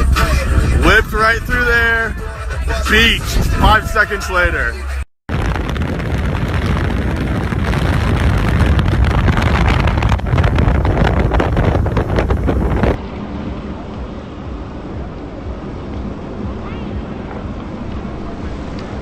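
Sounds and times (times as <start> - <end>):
wind buffeting microphone: 0.0 - 4.7, 5.3 - 19.0
boat running on water: 5.3 - 19.0.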